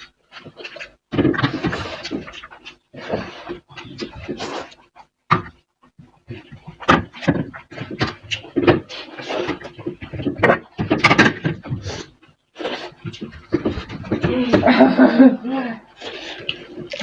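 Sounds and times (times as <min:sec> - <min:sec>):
people chewing and gulping: 0:00.0 - 0:17.0.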